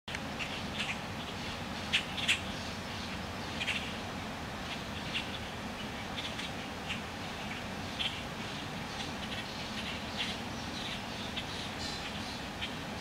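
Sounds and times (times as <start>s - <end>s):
steady background noise: 0.1s - 13.0s
bird chirps: 4.7s - 12.8s.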